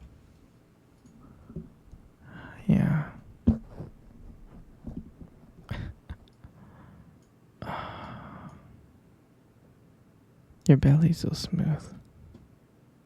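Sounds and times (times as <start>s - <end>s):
breathy sigh: 5.7s - 8.8s.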